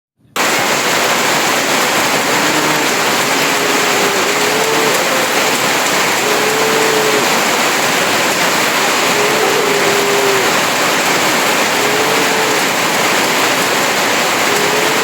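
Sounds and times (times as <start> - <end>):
heavy rain falling: 0.4 - 15.0
faint cattle mooing: 2.0 - 7.6, 8.6 - 13.0, 14.4 - 15.0.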